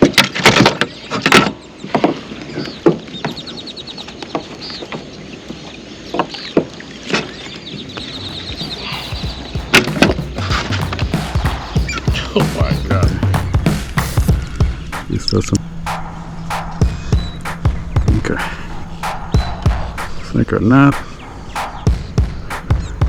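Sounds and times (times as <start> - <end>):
rapid ticking: 8.0 - 23.0.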